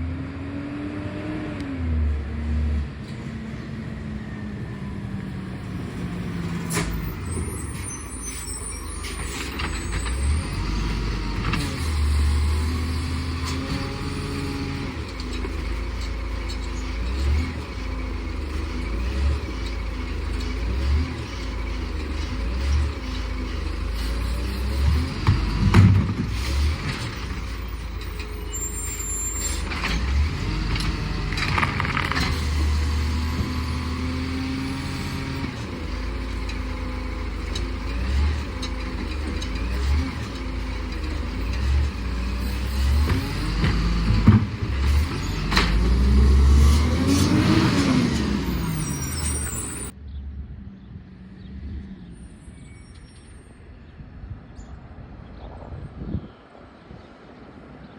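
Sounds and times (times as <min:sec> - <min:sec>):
garbage truck engine revving: 0:04.6 - 0:50.0.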